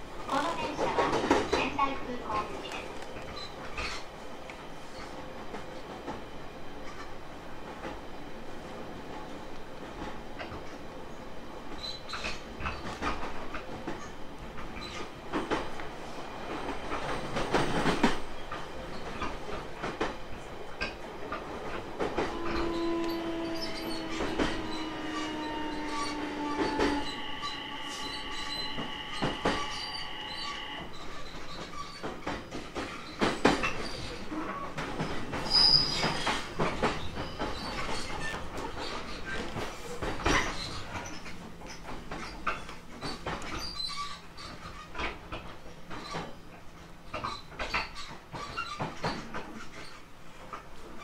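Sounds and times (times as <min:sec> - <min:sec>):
train rumble: 0:00.0 - 0:51.0
high wheel squeal: 0:22.4 - 0:32.0, 0:35.5 - 0:36.2.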